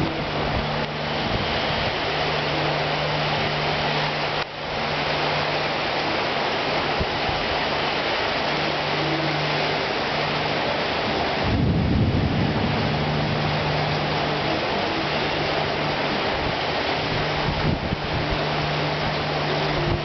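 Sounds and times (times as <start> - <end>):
heavy rain pouring: 0.0 - 20.0
low rumble of thunder: 11.4 - 14.9.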